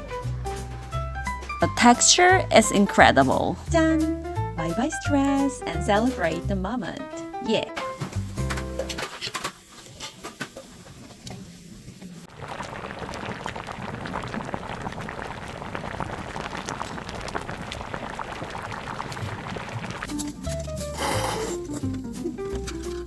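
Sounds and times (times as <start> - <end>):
liquid bubbling in a pot: 9.1 - 20.2.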